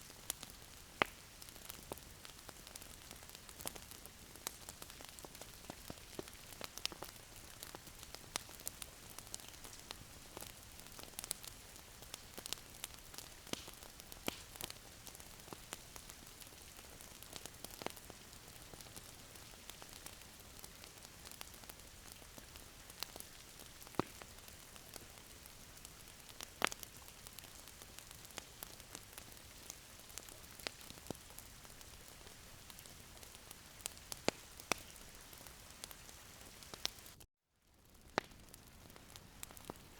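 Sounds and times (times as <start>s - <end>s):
wood fire crackling: 0.0s - 37.2s, 37.8s - 39.9s.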